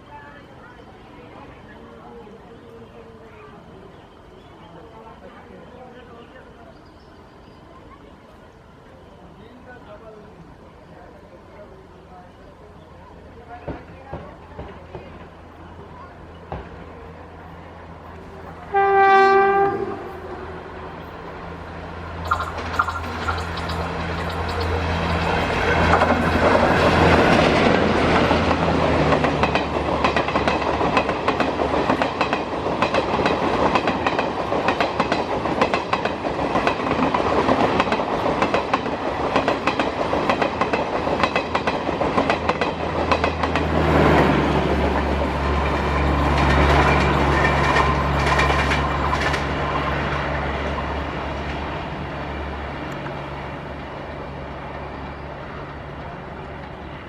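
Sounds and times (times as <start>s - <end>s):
train rumble: 7.2s - 57.0s
train wheels clattering: 19.7s - 50.2s.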